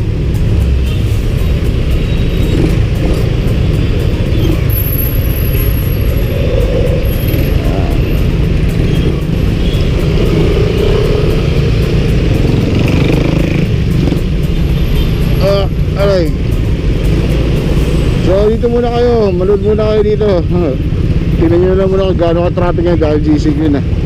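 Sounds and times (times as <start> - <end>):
wind noise: 2.4 - 12.2.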